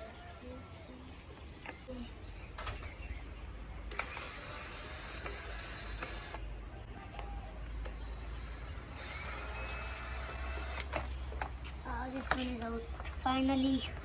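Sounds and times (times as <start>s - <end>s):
sharp clicks: 3.9s - 6.4s, 9.0s - 11.6s.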